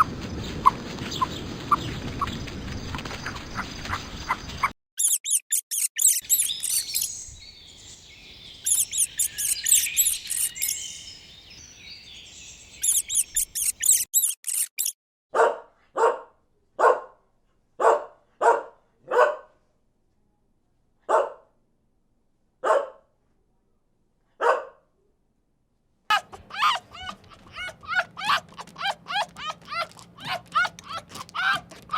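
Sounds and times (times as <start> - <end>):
bird chirping: 3.2 - 15.0
dog barking: 15.3 - 17.2, 17.8 - 19.6, 21.0 - 21.5, 22.6 - 23.1, 24.4 - 24.9, 26.1 - 31.6.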